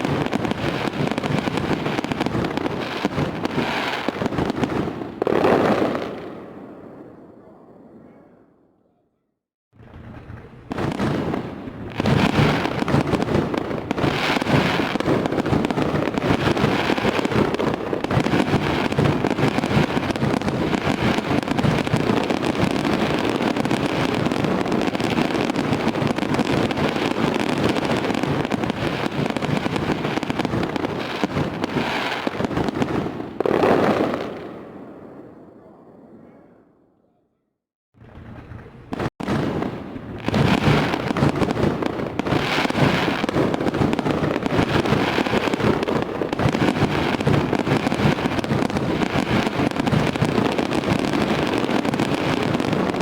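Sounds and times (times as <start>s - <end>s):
fireworks bangs and crackling: 0.0s - 8.4s, 9.8s - 36.4s, 38.0s - 53.0s.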